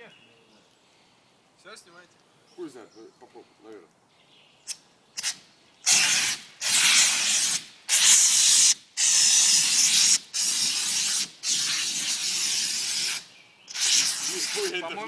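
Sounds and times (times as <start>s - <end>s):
fire extinguisher spraying: 5.2s - 14.9s.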